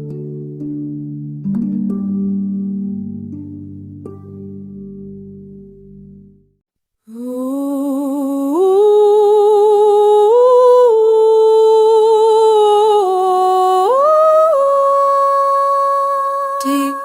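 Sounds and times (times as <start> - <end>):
person humming: 7.1 - 17.0.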